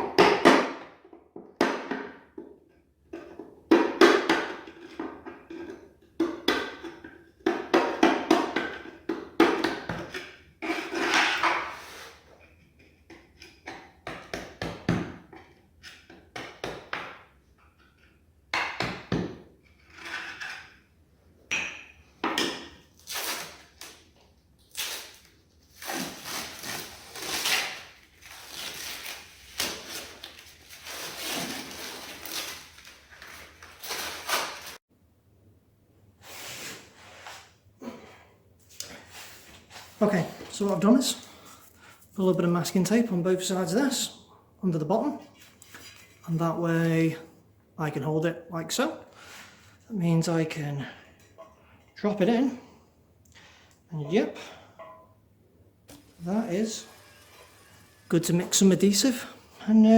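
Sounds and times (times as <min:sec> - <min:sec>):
scraping on tiled floor: 0:10.6 - 0:12.5.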